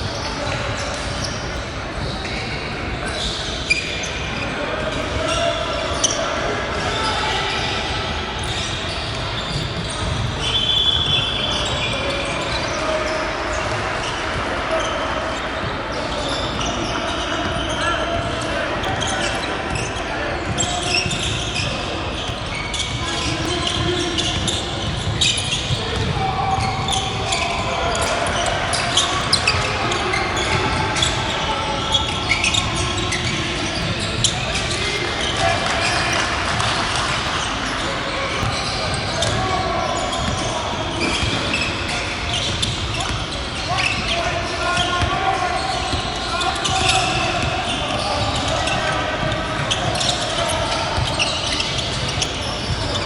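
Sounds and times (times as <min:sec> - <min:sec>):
large hall noise: 0:00.0 - 0:53.0
scattered voices: 0:00.0 - 0:53.0
sneaker squeaks: 0:00.0 - 0:53.0
basketball bouncing on court: 0:20.4 - 0:37.5, 0:38.3 - 0:44.2.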